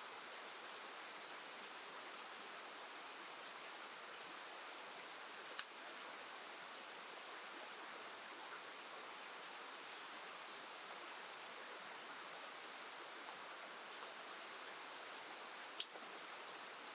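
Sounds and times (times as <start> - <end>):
rain falling: 0.0 - 16.9.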